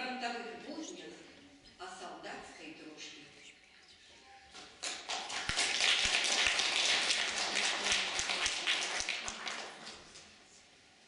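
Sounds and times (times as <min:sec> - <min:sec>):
audience applauding: 0:04.8 - 0:10.1.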